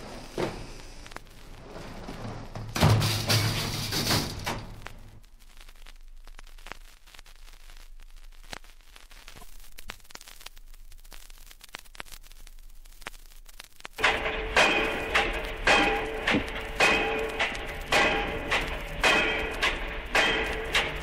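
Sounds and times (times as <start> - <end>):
vinyl record hiss and pops: 0.0 - 21.0
steady hum: 12.8 - 21.0
heavy repeated strikes: 14.0 - 21.0.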